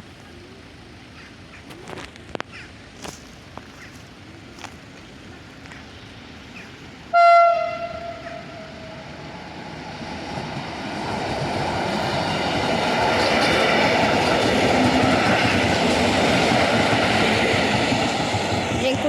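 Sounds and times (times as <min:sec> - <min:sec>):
train running noise: 0:01.0 - 0:19.0
train horn blast: 0:07.1 - 0:09.4.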